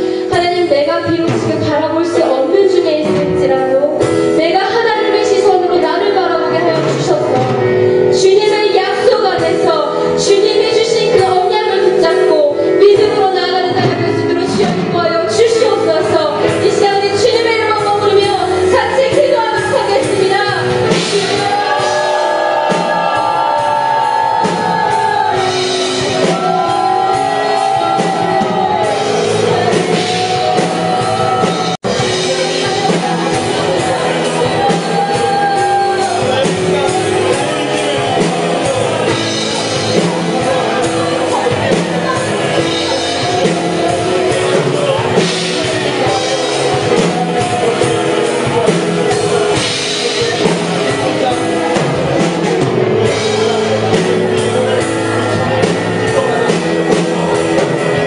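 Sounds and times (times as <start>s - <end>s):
live worship band music: 0.0s - 58.0s
voices singing and calling out: 14.6s - 58.0s.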